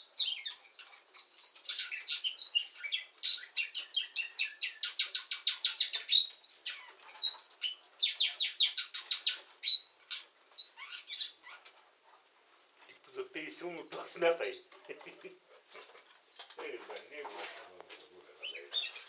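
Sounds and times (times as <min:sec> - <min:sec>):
canary singing fast trills: 0:00.0 - 0:12.2, 0:18.4 - 0:19.0.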